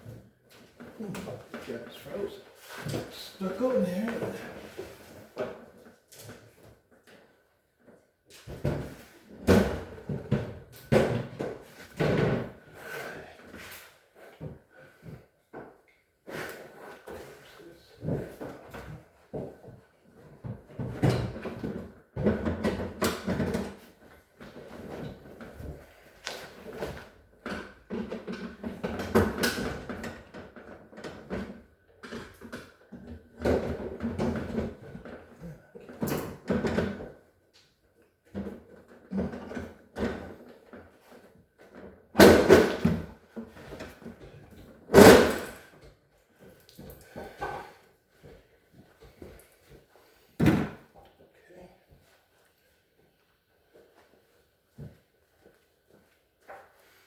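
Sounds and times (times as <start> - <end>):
refrigerator parts knocking and rattling: 18.0 - 26.0, 26.6 - 37.3.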